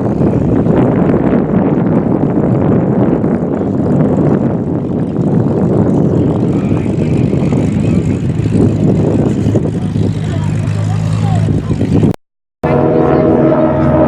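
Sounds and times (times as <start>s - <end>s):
propeller aircraft engine: 0.0s - 14.0s.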